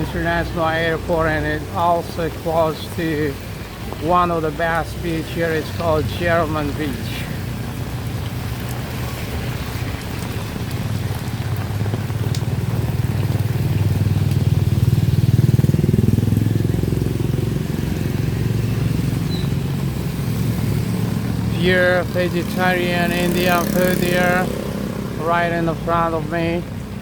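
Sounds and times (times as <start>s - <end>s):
motorbike engines passing: 0.0s - 27.0s
motorbike engine revving up: 8.9s - 26.1s.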